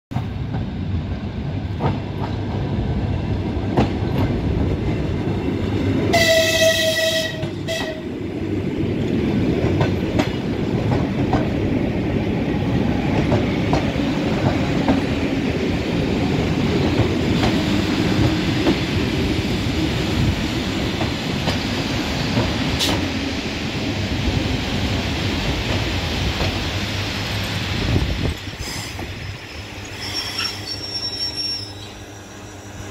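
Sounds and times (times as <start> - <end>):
train wheels rumbling on rails: 0.1 - 32.9
train horn blast: 6.1 - 8.1.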